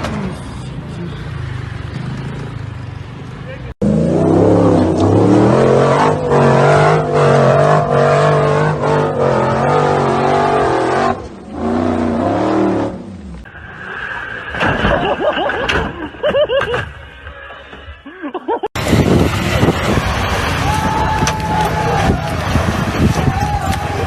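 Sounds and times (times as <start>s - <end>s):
car engine revving: 3.8s - 14.5s
short squealing glides: 13.5s - 18.0s.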